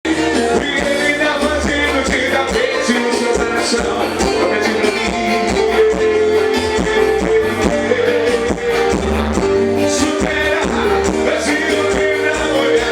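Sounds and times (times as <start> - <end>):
live band music: 0.0 - 12.9.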